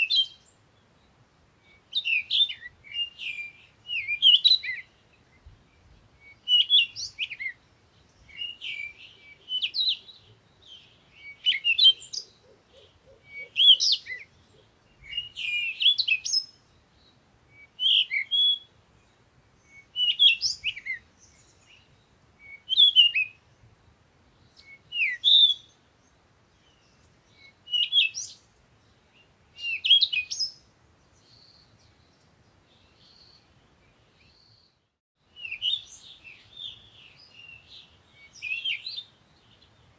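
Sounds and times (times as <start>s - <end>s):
songbird warbling: 1.6s - 5.0s, 6.2s - 16.8s, 17.5s - 18.7s, 26.7s - 28.4s.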